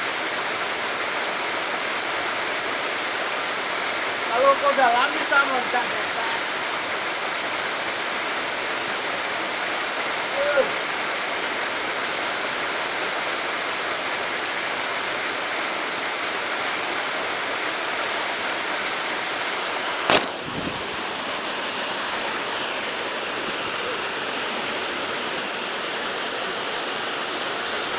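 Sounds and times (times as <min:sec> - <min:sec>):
waterfall rushing: 0:00.0 - 0:27.9
sharp click: 0:20.1 - 0:20.4.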